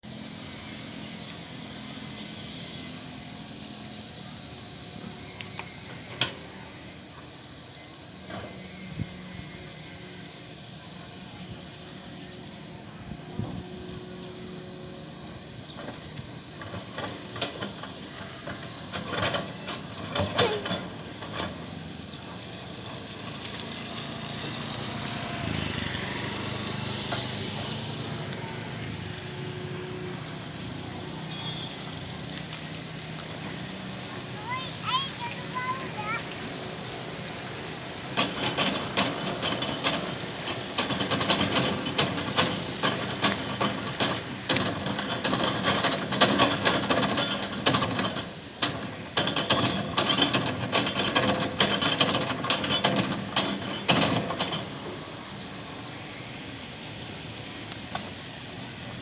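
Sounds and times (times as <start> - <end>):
excavator engine running: 0.0 - 59.0
high squeaks: 20.2 - 21.2
sharp metal clanks and knocks: 38.2 - 55.0.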